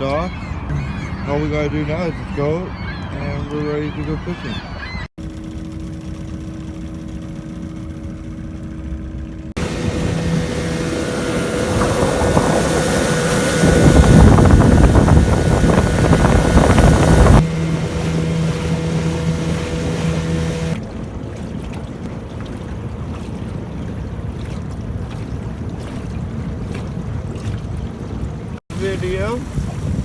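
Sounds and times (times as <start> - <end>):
motorboat engine humming: 0.0 - 30.0
wind buffeting microphone: 9.6 - 20.8, 22.0 - 30.0.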